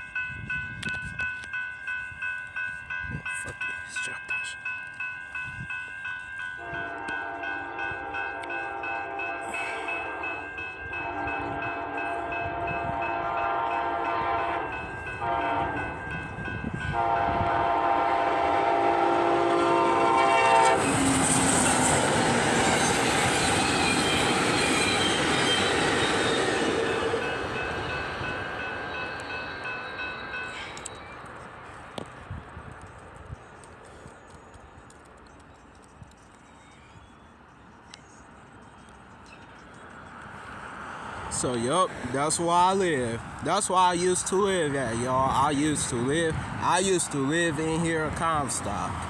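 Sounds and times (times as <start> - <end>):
crossing warning bell: 0.0 - 31.3, 37.6 - 49.0
train passing on rails: 0.0 - 49.0
train horn: 6.6 - 16.0, 16.8 - 21.7.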